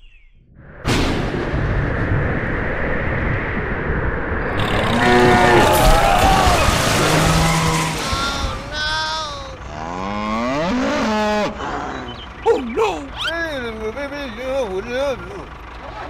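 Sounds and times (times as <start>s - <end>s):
steady rushing noise: 0.5s - 7.0s
cow mooing: 4.6s - 6.0s, 9.6s - 12.2s.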